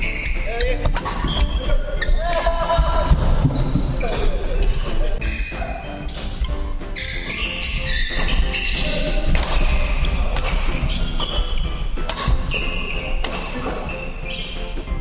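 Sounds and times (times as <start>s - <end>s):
racquet hitting shuttlecock: 0.9s - 1.5s, 7.0s - 14.5s
shoes squeaking on court: 6.2s - 15.0s.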